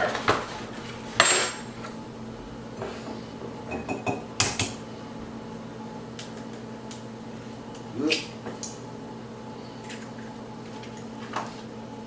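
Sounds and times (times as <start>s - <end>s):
steady low hum: 0.5s - 12.0s
dishes knocking and clinking: 3.7s - 4.8s.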